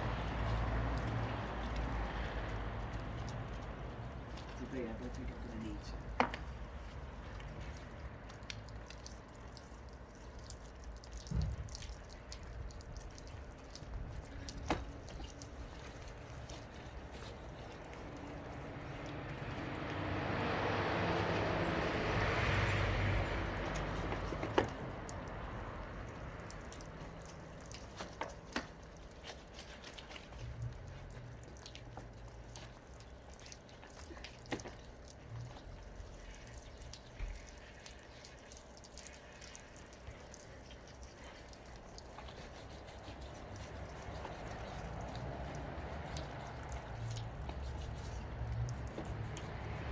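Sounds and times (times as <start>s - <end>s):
water dripping and trickling: 0.0s - 49.9s
light knocks and taps: 6.1s - 6.6s, 14.3s - 15.5s, 23.7s - 25.2s.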